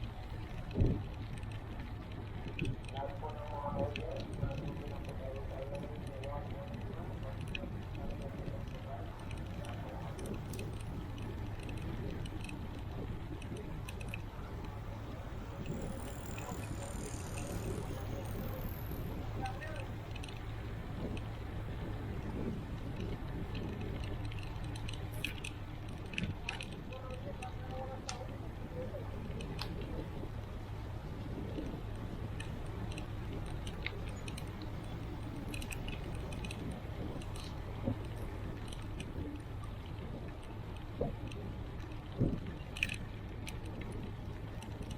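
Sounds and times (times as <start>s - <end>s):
bicycle wind and road rumble: 0.0s - 44.9s
light clicks and rattles: 0.0s - 44.9s
bike rattling metallic clicks: 32.3s - 39.2s, 41.2s - 44.9s.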